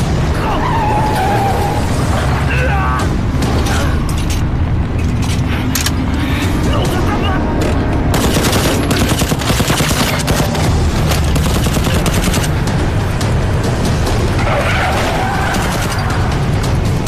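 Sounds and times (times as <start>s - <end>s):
dense loud film score: 0.0s - 17.0s
rapid gunfire bursts: 8.1s - 12.8s.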